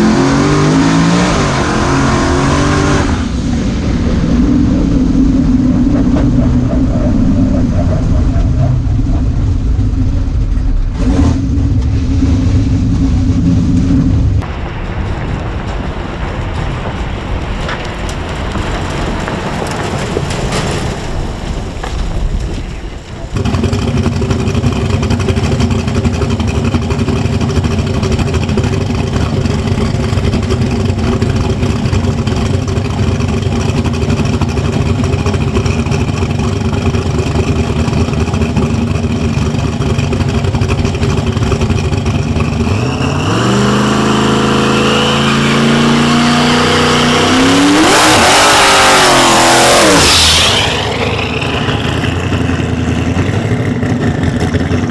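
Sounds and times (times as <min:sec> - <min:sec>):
truck engine idling and accelerating: 0:00.0 - 0:54.9.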